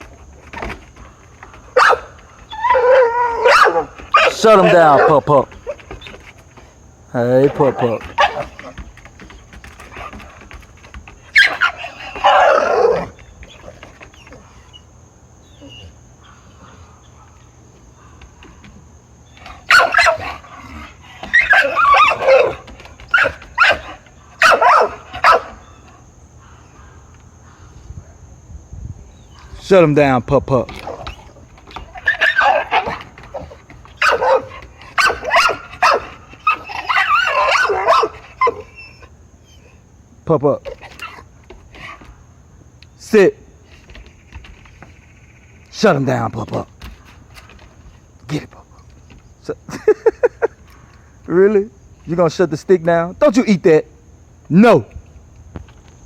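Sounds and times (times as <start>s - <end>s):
puppy barking: 1.8s - 5.8s, 7.5s - 8.6s, 11.3s - 13.1s, 19.6s - 20.4s, 21.3s - 25.6s, 34.0s - 39.0s.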